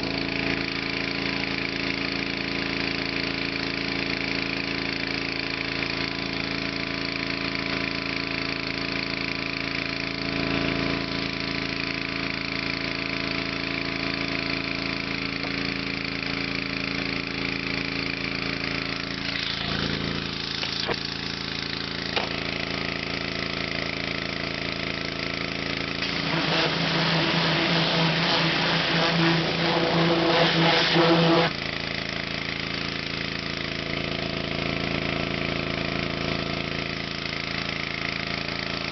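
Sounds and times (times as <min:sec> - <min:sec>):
pressure washer engine running: 0:00.0 - 0:38.9
pressure washer hiss: 0:19.0 - 0:22.8, 0:25.8 - 0:33.5.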